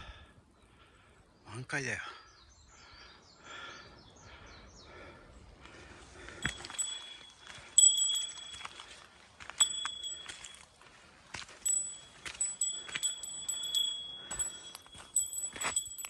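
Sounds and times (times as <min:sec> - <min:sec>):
small metal bell jingling: 0:06.4 - 0:10.6, 0:11.5 - 0:16.0.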